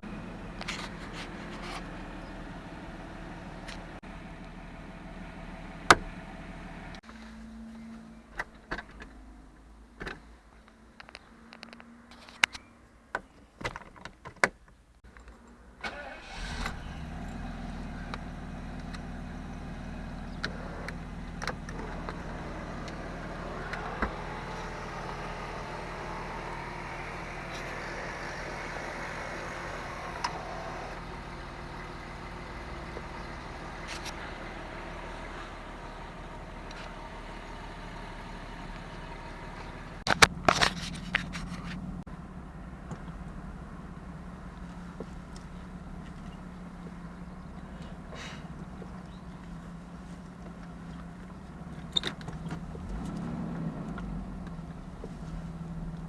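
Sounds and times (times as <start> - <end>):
car engine starting and idling: 0.0 - 10.3, 15.0 - 56.0.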